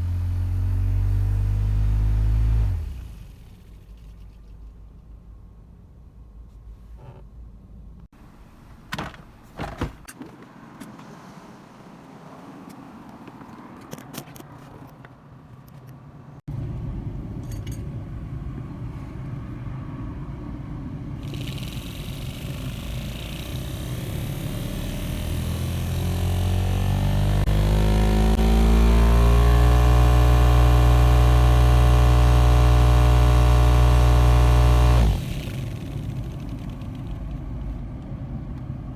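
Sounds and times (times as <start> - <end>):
car engine running: 21.1 - 37.8
blower hiss: 21.2 - 37.5.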